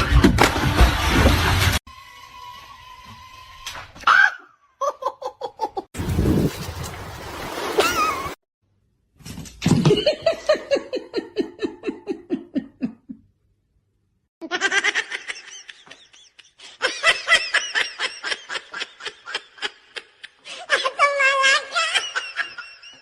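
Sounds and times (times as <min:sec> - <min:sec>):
person laughing: 0:04.8 - 0:05.9, 0:07.8 - 0:08.4, 0:09.8 - 0:13.2, 0:14.4 - 0:23.0.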